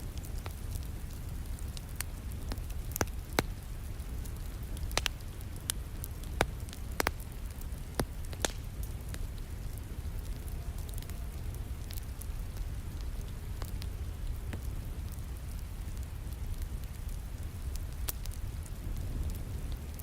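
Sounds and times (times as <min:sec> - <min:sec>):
wood fire crackling and popping: 0:00.0 - 0:20.0.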